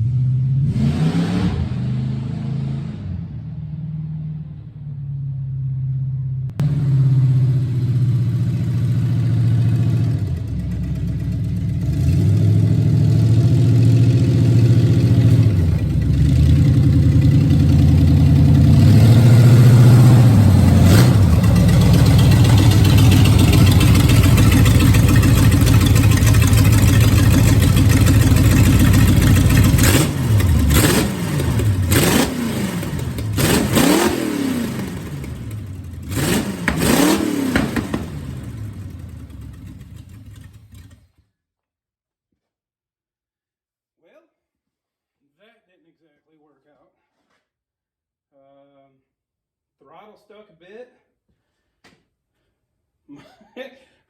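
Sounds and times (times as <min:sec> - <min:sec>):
engine running and revving: 0:00.0 - 0:04.5, 0:06.6 - 0:41.0.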